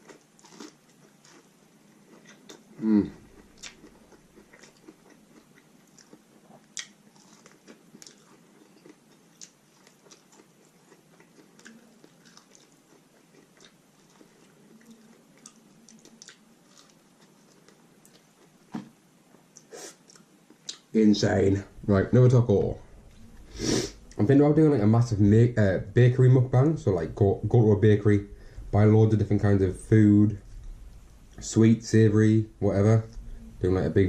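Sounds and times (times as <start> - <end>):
person chewing crunchy food: 0.0 - 18.6.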